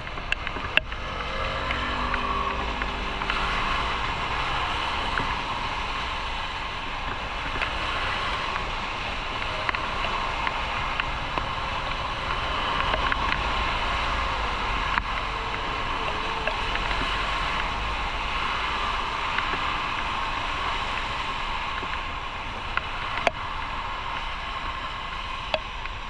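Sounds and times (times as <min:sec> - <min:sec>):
motorcycle engine: 0:00.0 - 0:06.2
wind noise over microphone: 0:00.0 - 0:26.0.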